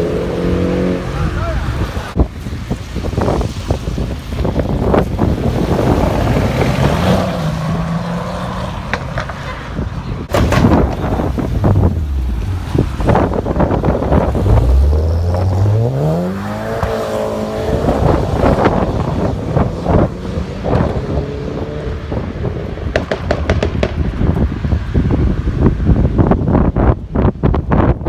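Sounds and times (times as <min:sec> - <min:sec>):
sports car accelerating: 0:00.0 - 0:02.2, 0:04.8 - 0:23.3.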